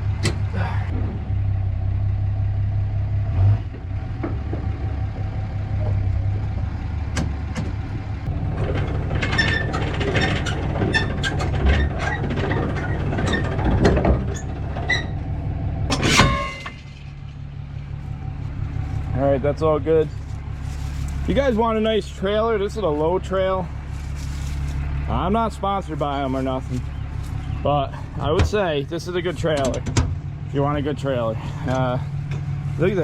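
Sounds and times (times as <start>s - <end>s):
diesel engine idling: 0.0s - 33.0s
sharp clanks and knocks: 3.6s - 15.3s, 15.9s - 17.5s, 26.7s - 30.5s, 31.4s - 32.7s.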